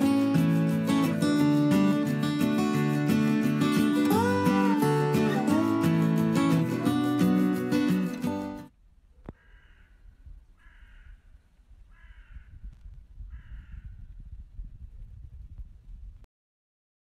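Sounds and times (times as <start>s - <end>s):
bird calling: 9.2s - 12.5s.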